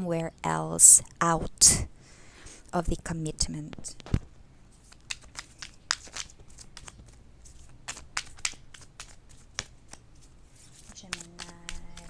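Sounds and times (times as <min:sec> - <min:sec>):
cards being shuffled by hand: 0:03.7 - 0:12.0.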